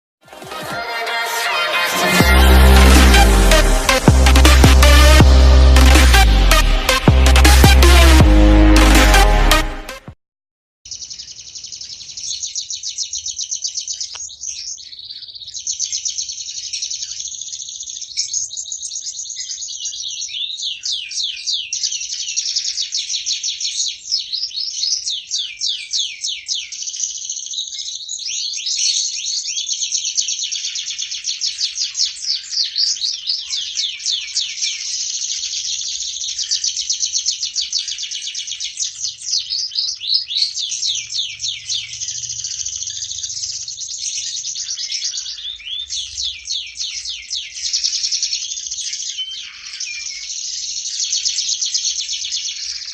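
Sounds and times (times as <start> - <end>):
canary singing trills: 10.9 - 52.9.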